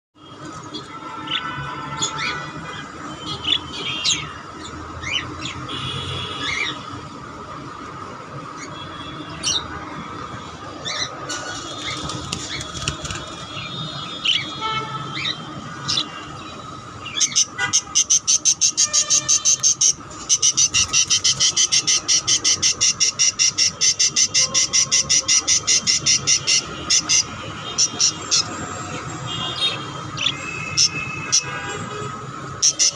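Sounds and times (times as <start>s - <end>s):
pet bird chirping: 17.1s - 28.5s.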